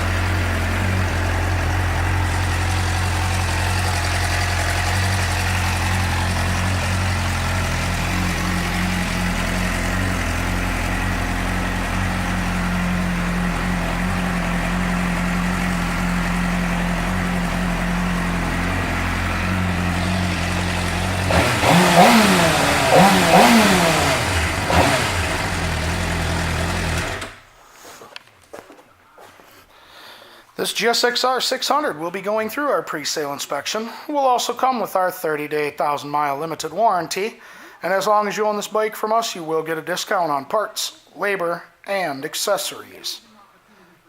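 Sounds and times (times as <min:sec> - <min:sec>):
motorcycle engine idling and revving: 0:00.0 - 0:27.4.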